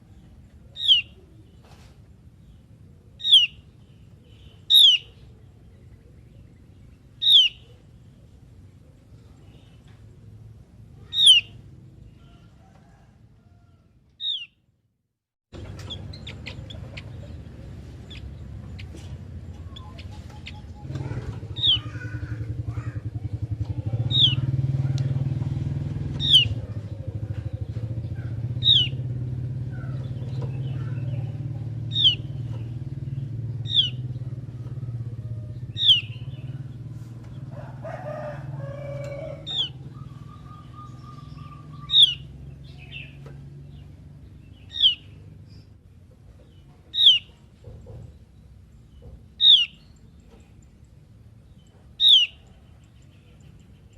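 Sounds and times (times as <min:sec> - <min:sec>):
bird whistled calls: 0:00.8 - 0:01.2, 0:03.2 - 0:03.6, 0:04.3 - 0:05.1, 0:07.2 - 0:07.6, 0:11.1 - 0:11.6, 0:33.7 - 0:34.0, 0:35.8 - 0:36.4, 0:39.5 - 0:43.1, 0:44.6 - 0:45.1, 0:47.0 - 0:47.3, 0:49.4 - 0:50.0, 0:52.0 - 0:52.4
low steady rumble: 0:15.6 - 0:53.9.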